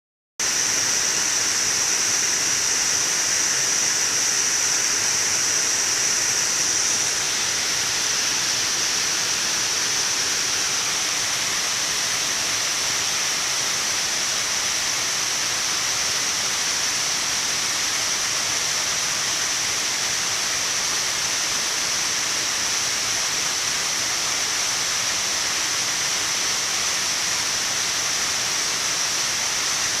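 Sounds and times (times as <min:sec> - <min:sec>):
waterfall rushing: 0:00.4 - 0:20.2.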